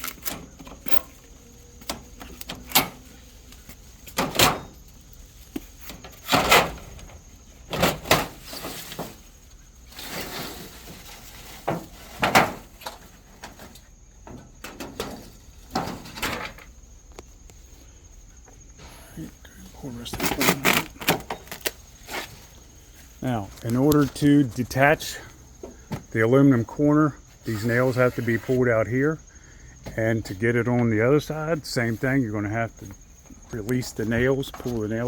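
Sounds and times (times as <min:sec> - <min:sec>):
aluminum siding knocking and scraping: 0:10.0 - 0:16.7.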